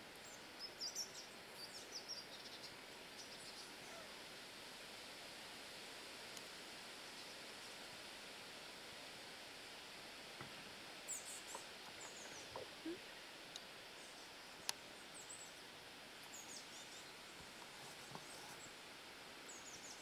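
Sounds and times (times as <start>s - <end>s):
steady outdoor hiss: 0.0s - 20.0s
songbirds chirping: 0.1s - 4.1s, 10.4s - 20.0s
soft rustles: 17.4s - 18.8s.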